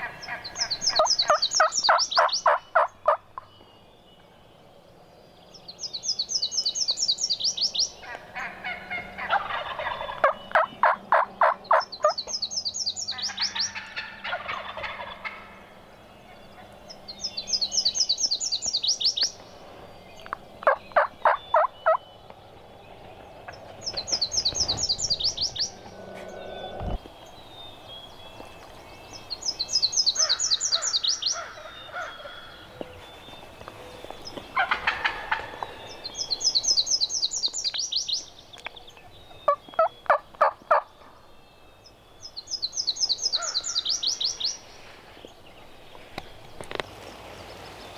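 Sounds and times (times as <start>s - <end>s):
wild turkeys calling: 0.0s - 3.7s, 7.6s - 27.5s, 28.3s - 41.4s, 42.4s - 47.8s
birdsong: 0.0s - 47.9s.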